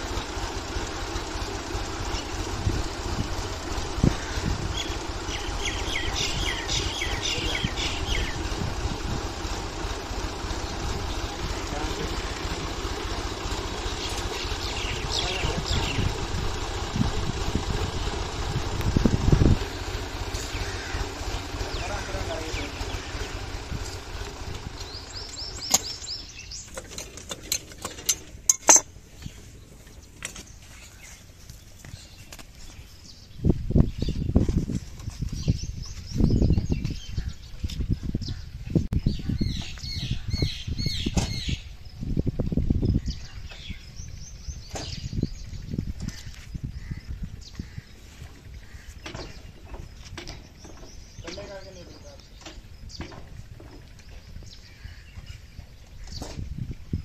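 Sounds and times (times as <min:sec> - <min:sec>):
tractor engine running: 0:00.0 - 0:57.0
bird chirping: 0:04.1 - 0:08.6, 0:13.8 - 0:16.2, 0:20.2 - 0:24.0, 0:24.7 - 0:27.0, 0:28.5 - 0:57.0
metallic clinks and knocks: 0:26.8 - 0:28.9.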